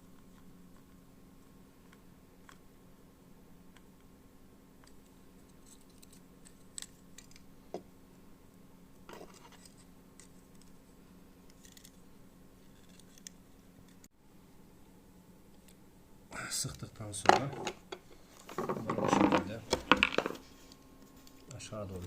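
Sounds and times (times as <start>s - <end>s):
small clicks and scratches: 0.0s - 2.6s, 4.8s - 7.5s, 9.1s - 12.0s, 12.6s - 14.1s
steady low hum: 0.0s - 22.0s.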